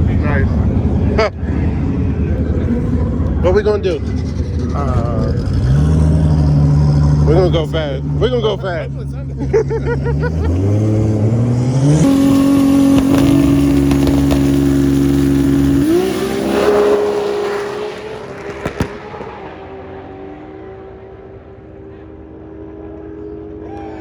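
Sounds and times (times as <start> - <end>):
race car engine revving: 0.0 - 24.0
engine pops: 12.3 - 16.0, 18.3 - 19.6.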